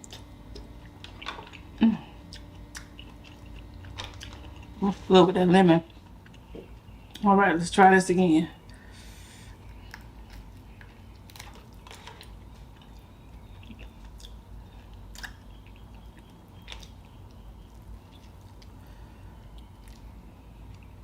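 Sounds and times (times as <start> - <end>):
moist chewing: 0.0 - 4.8, 9.5 - 21.0.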